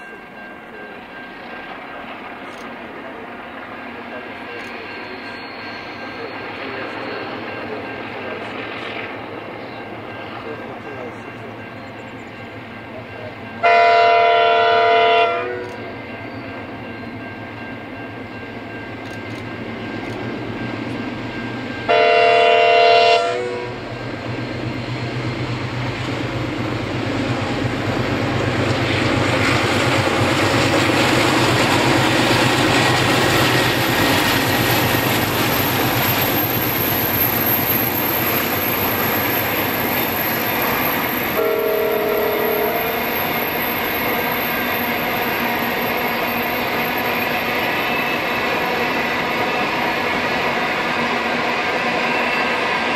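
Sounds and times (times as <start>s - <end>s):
diesel locomotive engines: 0.0s - 52.9s
train wheels on rails: 0.0s - 52.9s
train air horn blasts: 13.6s - 15.8s, 21.9s - 23.8s, 41.3s - 43.2s.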